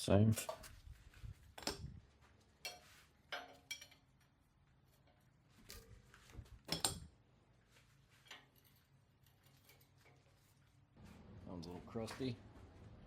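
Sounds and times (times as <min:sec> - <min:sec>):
metal tools clinking: 0:02.6 - 0:04.4, 0:08.2 - 0:10.2.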